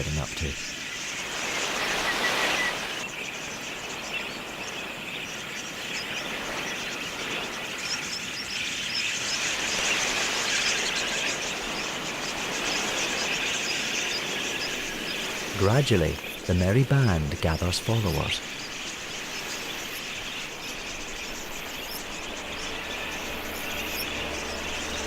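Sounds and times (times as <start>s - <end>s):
budgerigars chattering: 0.0s - 3.6s, 10.6s - 25.0s.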